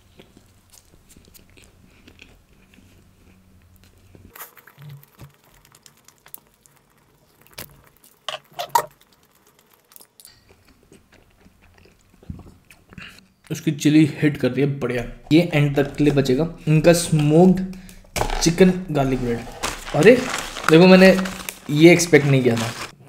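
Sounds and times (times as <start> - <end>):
chewing toasted bread: 0.0 - 13.2, 17.0 - 21.8.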